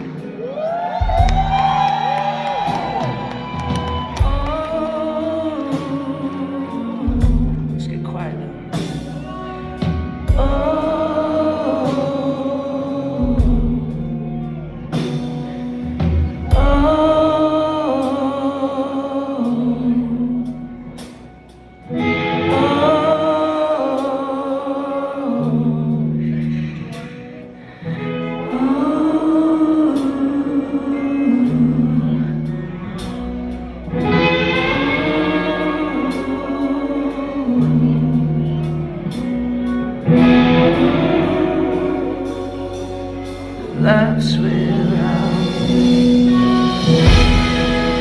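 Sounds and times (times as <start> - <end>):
sustained guitar chords: 0.0 - 48.0
person singing with vibrato: 1.0 - 14.6, 16.5 - 48.0
sustained low chords: 25.4 - 48.0
drum and cymbal hits: 45.2 - 48.0.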